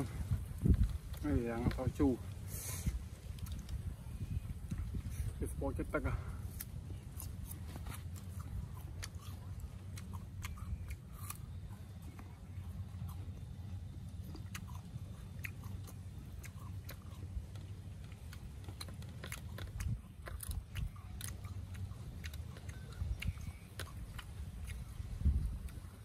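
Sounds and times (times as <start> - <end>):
person chewing crisp fruit: 0.0 - 26.0
steady low hum: 0.0 - 26.0.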